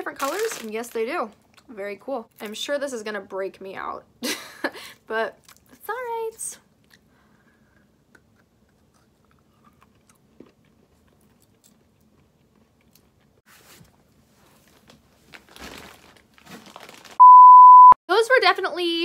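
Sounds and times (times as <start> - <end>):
crunching and chewing candy: 7.7 - 13.4.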